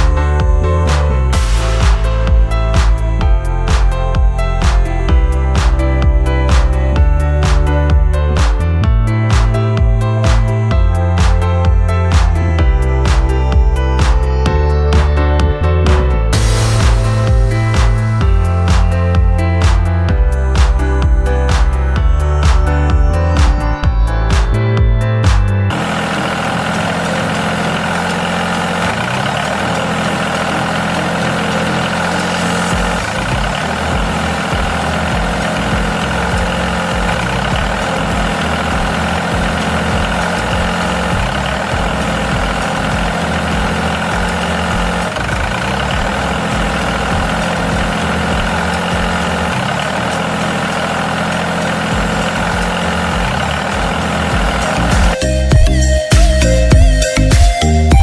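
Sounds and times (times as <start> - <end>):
low irregular thumping: 0.0 - 25.7, 32.7 - 49.6
engine idling: 0.0 - 58.0.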